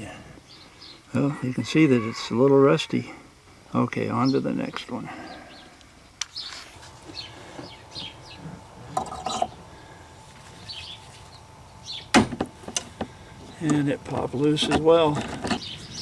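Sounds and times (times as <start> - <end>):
small birds chirping: 0.0 - 1.2, 3.9 - 16.0
wiper arm popping loose: 12.1 - 15.8.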